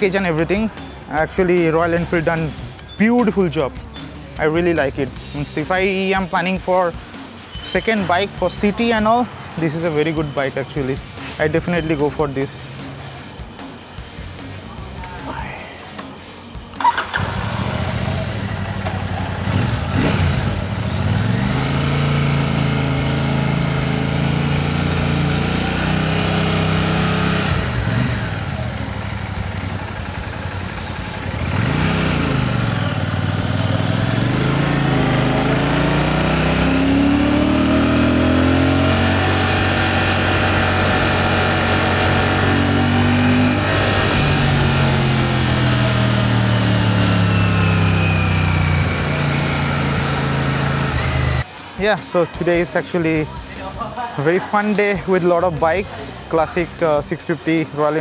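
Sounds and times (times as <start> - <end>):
motorcycle engine revving: 16.8 - 51.5.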